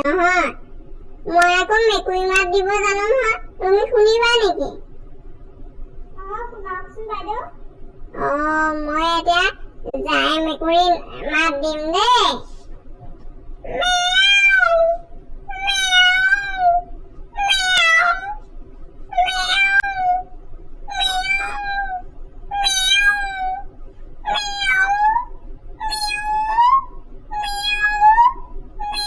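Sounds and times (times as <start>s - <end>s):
woman imitating cat meows: 17.4s - 18.4s, 19.2s - 20.2s, 20.9s - 23.6s, 24.3s - 25.2s, 25.8s - 29.0s.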